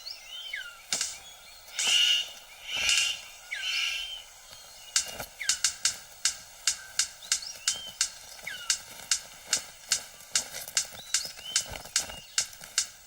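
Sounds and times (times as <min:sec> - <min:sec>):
thin gliding bird whistles: 0:00.0 - 0:05.8, 0:11.0 - 0:12.5
bird harsh calls: 0:00.0 - 0:12.8
bird sharp clicks: 0:00.5 - 0:13.0.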